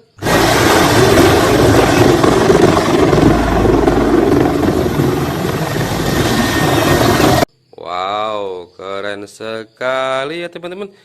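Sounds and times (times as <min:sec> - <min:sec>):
helicopter rotor and engine: 0:00.0 - 0:07.5.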